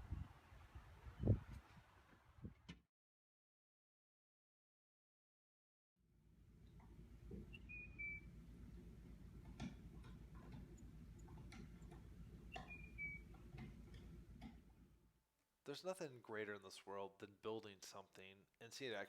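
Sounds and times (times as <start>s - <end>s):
low steady hum: 6.2s - 15.0s
light taps and clicks: 9.4s - 14.8s.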